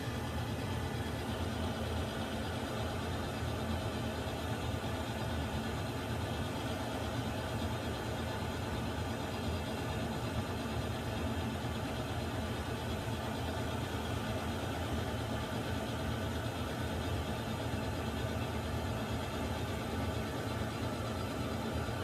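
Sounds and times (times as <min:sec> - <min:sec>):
water heater rumbling and hissing: 0:00.0 - 0:22.0.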